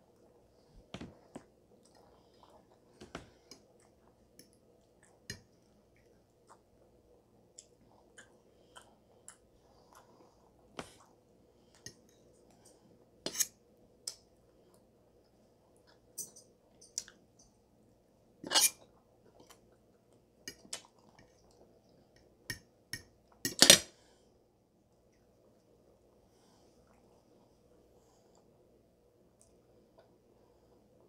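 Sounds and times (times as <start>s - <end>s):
person chewing food: 0.1s - 13.1s.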